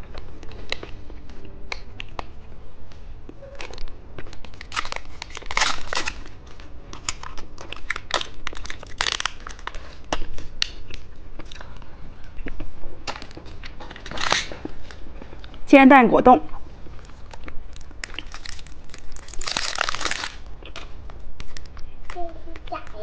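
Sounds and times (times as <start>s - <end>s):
plastic wrapper crinkling: 3.5s - 12.4s, 13.0s - 15.6s, 16.9s - 23.0s.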